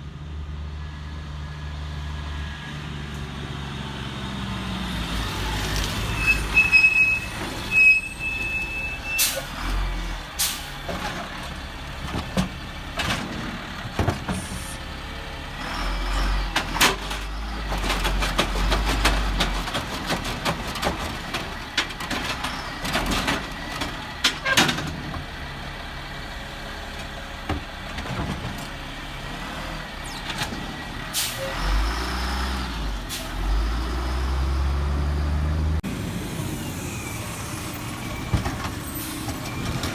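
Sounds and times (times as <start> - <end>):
diesel engine revving: 0.1 - 24.2, 25.0 - 39.9.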